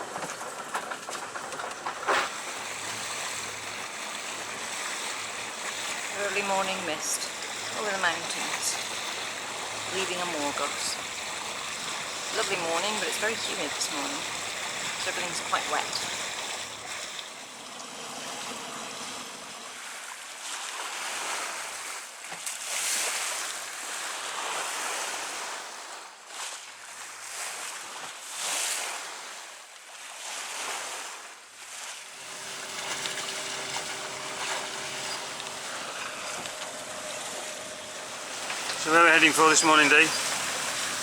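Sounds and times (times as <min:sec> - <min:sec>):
sea water splashing along hull: 0:00.0 - 0:41.0
faint steady whine: 0:02.2 - 0:19.7, 0:32.1 - 0:41.0
steady low hum: 0:02.2 - 0:19.7, 0:32.1 - 0:41.0.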